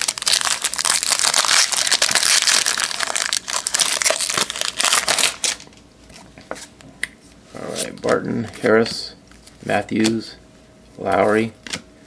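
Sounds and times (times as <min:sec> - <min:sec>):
plastic wrapper tearing and crinkling: 0:00.0 - 0:05.8.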